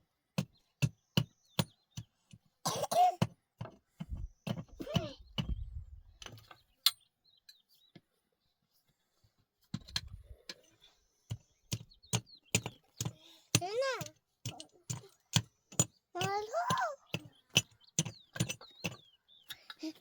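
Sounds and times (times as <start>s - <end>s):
scattered knocks and clicks: 11.3s - 20.0s.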